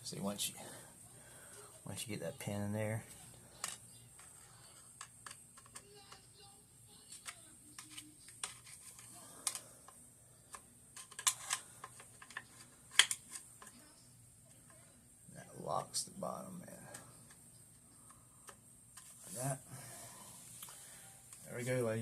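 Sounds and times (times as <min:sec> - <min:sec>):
small clicks of rifle parts: 0:07.2 - 0:13.8.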